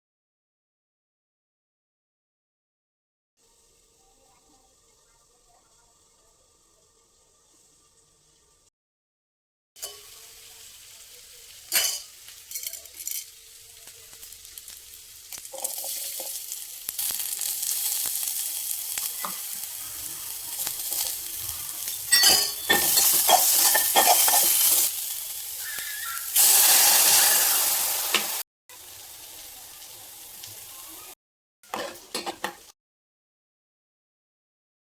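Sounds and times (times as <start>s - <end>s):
food sizzling in a hot pan: 3.4s - 8.7s, 9.8s - 32.8s
utensil scraping a pan: 19.2s - 24.9s.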